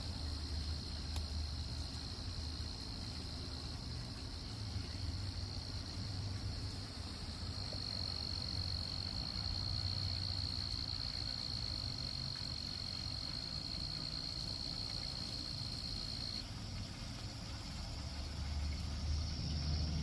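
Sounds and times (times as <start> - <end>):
insects trilling: 7.5 - 16.6.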